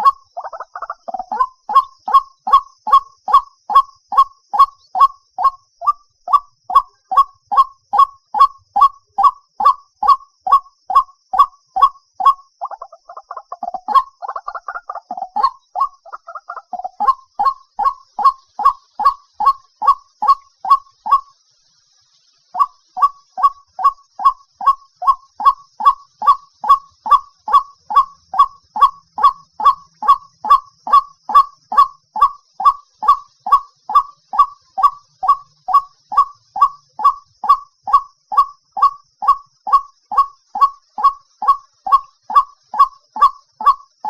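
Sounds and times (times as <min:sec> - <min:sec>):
waterhen calling: 0:00.0 - 0:21.4, 0:22.6 - 0:44.0.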